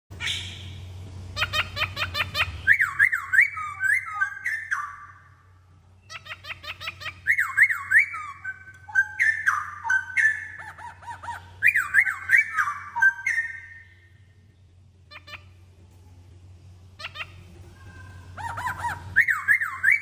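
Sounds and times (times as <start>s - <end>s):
bird singing whistles: 1.5s - 5.2s, 7.2s - 10.6s, 11.6s - 14.1s, 18.4s - 20.0s.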